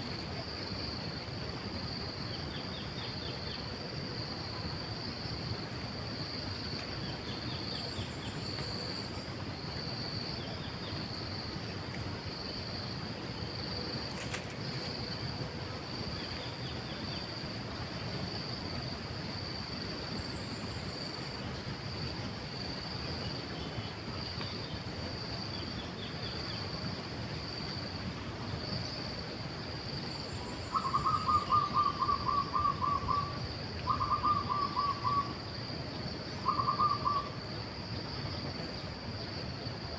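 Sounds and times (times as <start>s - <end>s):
faint bird chirps: 30.4s - 35.4s, 36.4s - 37.4s
bird hooting calls: 30.6s - 35.4s, 36.4s - 37.4s.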